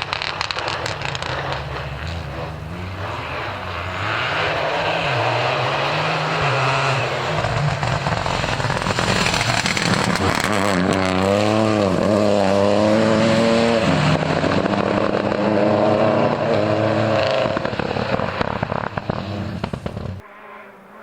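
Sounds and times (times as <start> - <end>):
sharp engine crackles: 0.0 - 20.2
rally car engine revving: 0.0 - 21.0.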